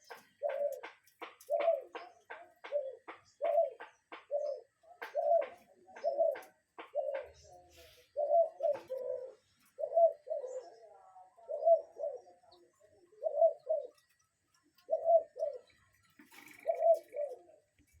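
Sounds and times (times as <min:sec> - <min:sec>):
bird hooting call: 0:08.1 - 0:10.8, 0:13.2 - 0:14.0, 0:14.9 - 0:15.7, 0:16.5 - 0:17.5.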